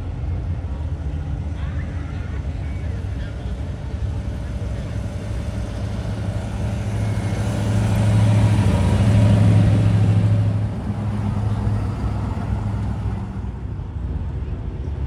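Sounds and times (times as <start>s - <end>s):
car engine rumbling driving past: 1.9s - 13.7s.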